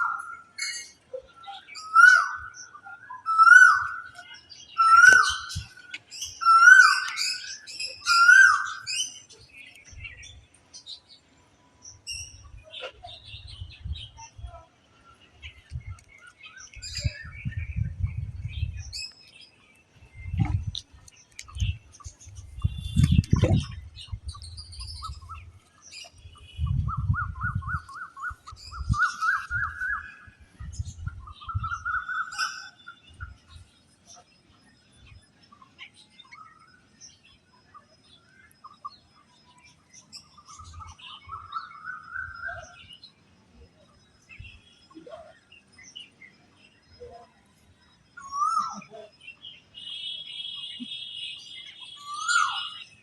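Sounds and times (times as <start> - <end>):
small birds chirping: 0.0 - 53.0
bird warbling call: 49.8 - 53.0.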